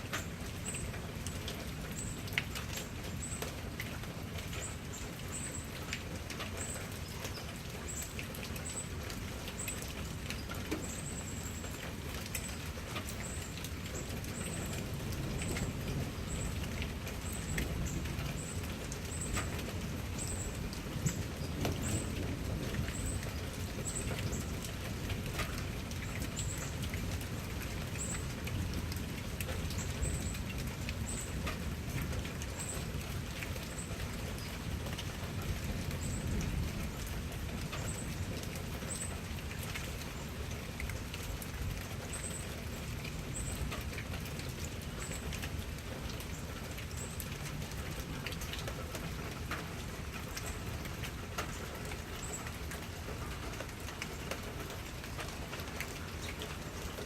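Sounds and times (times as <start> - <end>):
rain falling: 0.0 - 57.0
raindrops pattering: 0.0 - 57.0.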